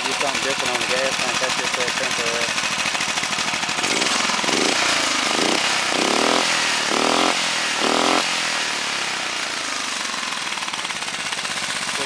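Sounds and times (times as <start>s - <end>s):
small engine revving: 0.0s - 12.0s.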